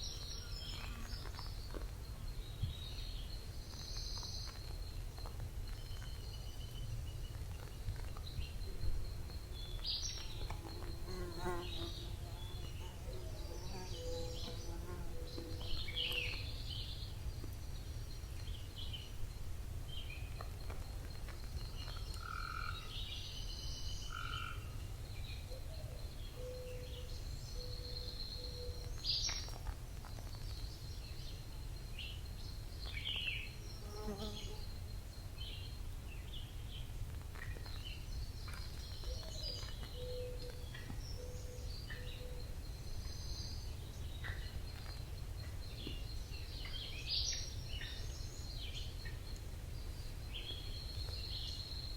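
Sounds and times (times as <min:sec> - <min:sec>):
birds singing and chirping: 0:00.0 - 0:19.1, 0:35.4 - 0:51.9.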